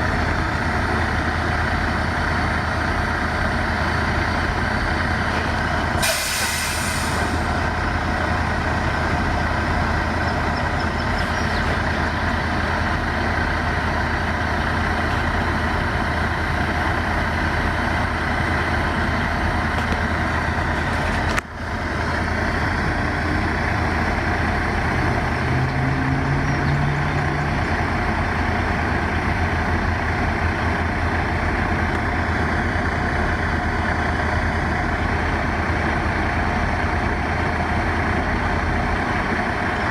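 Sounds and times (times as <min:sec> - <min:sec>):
heavy engine idling drone: 0:00.0 - 0:39.9
short hiss: 0:06.0 - 0:07.4.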